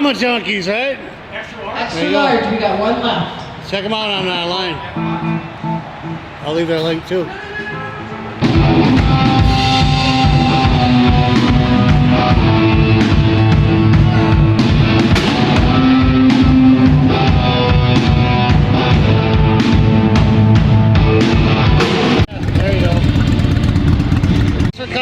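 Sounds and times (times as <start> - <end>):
live rock band playing: 7.6 - 24.8.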